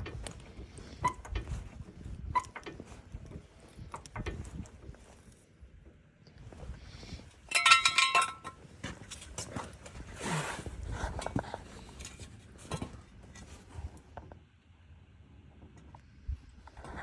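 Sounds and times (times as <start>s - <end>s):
metallic clinking and jingling: 7.4s - 9.3s.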